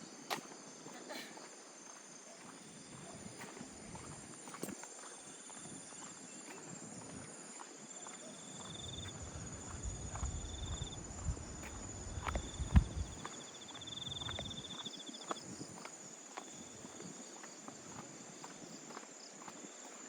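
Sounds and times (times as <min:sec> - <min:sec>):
insects trilling: 0:00.0 - 0:19.8
footsteps on path: 0:00.2 - 0:20.0
pulsing insect trill: 0:08.4 - 0:15.4
low rumble: 0:09.1 - 0:13.2.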